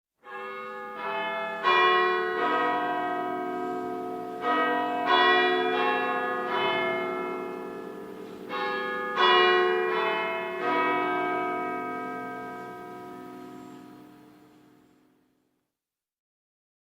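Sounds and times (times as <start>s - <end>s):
church bells ringing: 0.2s - 15.2s.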